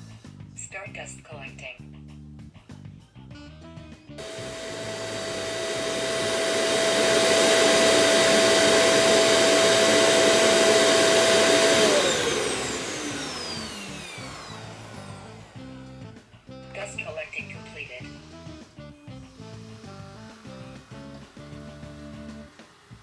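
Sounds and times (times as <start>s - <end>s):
suction motor whining: 4.2s - 17.6s, 19.2s - 23.0s.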